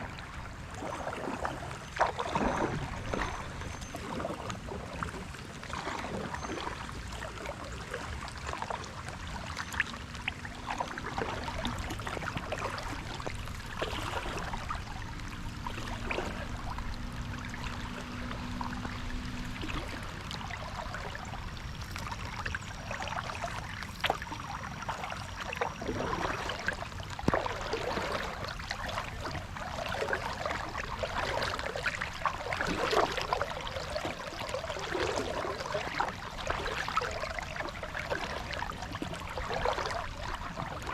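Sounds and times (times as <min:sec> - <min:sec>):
kayak paddle splashing: 0:00.0 - 0:40.9
rain pattering on water: 0:00.0 - 0:40.9
water dripping off paddle: 0:08.3 - 0:40.9.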